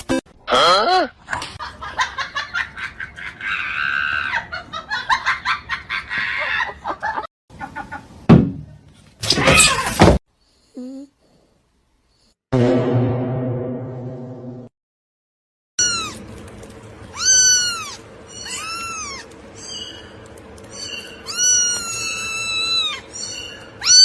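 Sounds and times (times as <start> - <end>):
people laughing: 1.6 - 8.0.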